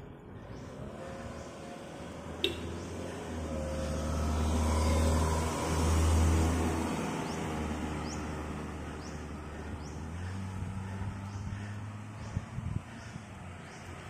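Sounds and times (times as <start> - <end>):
vehicle engine passing: 0.3 - 14.0.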